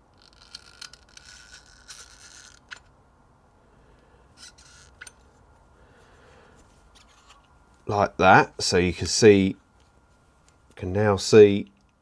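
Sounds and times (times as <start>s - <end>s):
light scrapes of metal parts: 6.6s - 7.5s.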